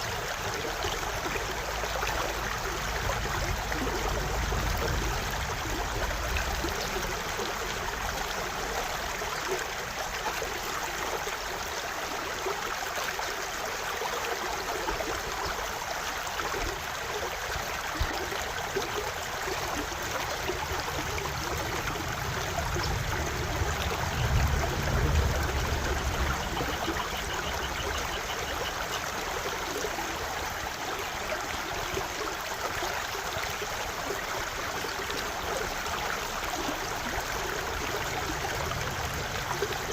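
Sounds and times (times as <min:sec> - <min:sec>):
stream water running: 0:00.0 - 0:39.9
low rumble: 0:20.6 - 0:27.8.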